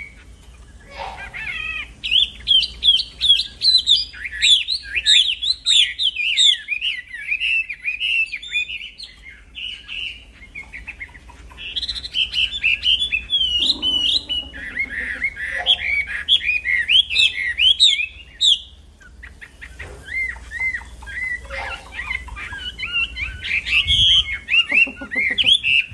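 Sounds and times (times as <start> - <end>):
songbird singing: 0.0 - 25.9.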